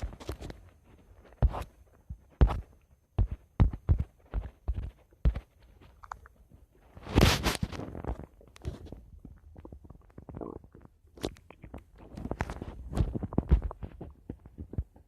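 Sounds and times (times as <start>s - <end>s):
stomach gurgling: 7.0s - 15.0s.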